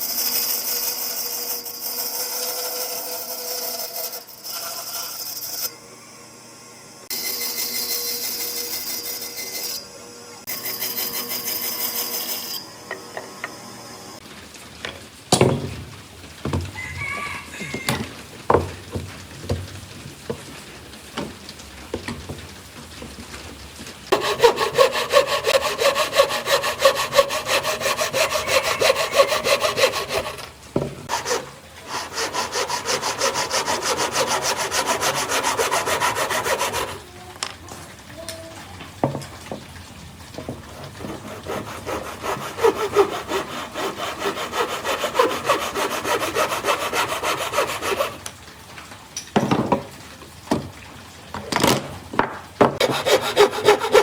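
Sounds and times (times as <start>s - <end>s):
handsaw sawing wood: 0.0s - 5.7s, 10.5s - 12.6s, 24.1s - 37.0s, 40.8s - 48.2s, 52.8s - 54.0s.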